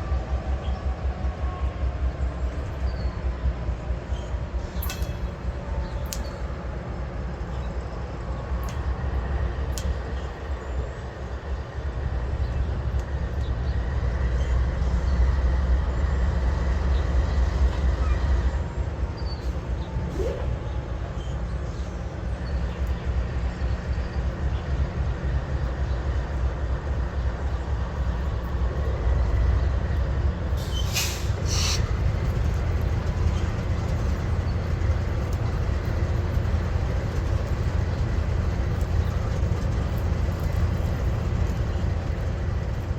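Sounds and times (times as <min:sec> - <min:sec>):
train wheels rumbling on rail: 0:00.0 - 0:42.9.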